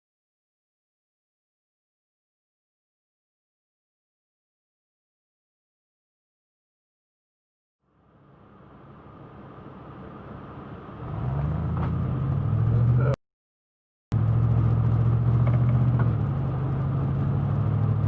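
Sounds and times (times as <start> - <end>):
car engine humming: 7.9 - 13.2, 14.1 - 18.0.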